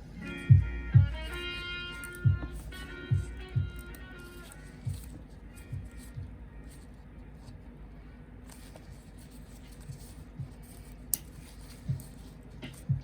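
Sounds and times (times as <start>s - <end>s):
soft low thumps: 0.5s - 1.6s, 2.2s - 4.1s, 4.8s - 6.7s, 11.8s - 13.0s.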